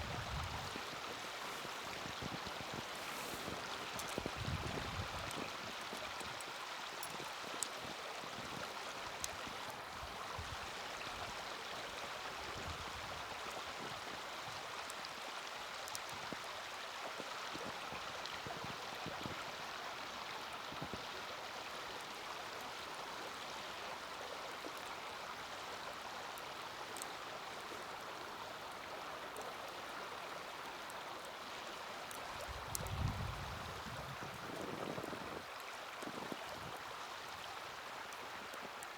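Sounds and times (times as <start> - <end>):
fire crackles: 0.0 - 19.6, 21.8 - 38.9
fire rushing hiss: 0.5 - 4.2.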